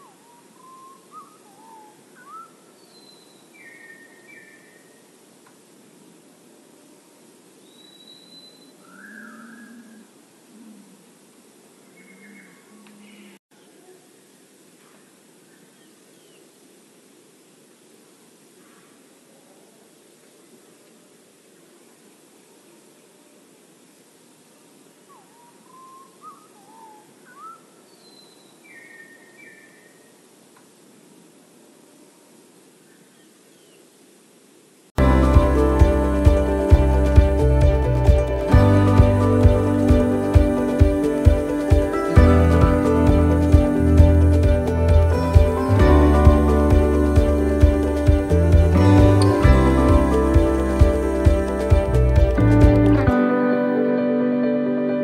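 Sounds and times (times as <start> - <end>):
songbirds whistling: 0.0 - 5.0, 7.6 - 10.0, 25.1 - 30.1
steady hiss: 0.0 - 53.2.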